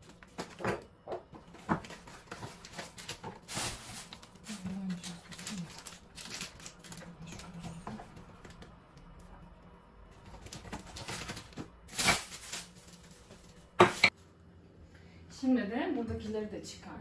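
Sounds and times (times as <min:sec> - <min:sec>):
food packets rustling: 0:01.4 - 0:08.6, 0:10.2 - 0:13.8.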